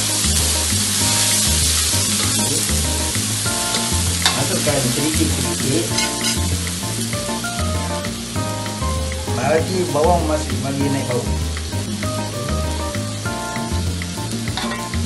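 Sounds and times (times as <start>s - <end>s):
paste sizzling in hot oil: 0.0s - 15.0s
metal spatula scraping pan: 5.9s - 6.5s.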